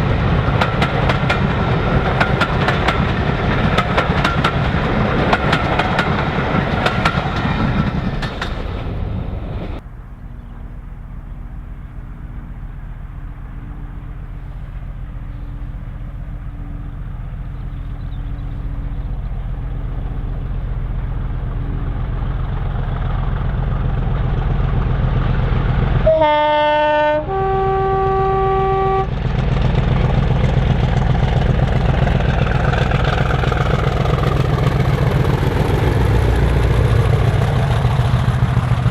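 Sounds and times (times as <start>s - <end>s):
locomotive engine rumble: 0.0s - 38.9s
train clattering: 0.0s - 38.9s
two-tone train horn: 26.0s - 29.2s.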